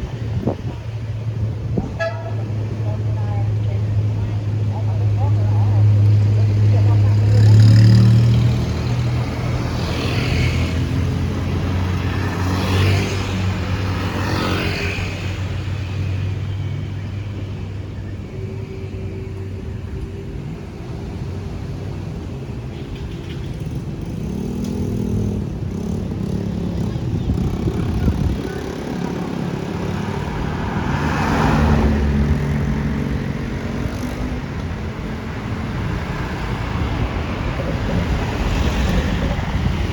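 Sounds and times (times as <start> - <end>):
vehicle engines running: 0.0 - 39.9
vehicle passing close: 24.1 - 39.9.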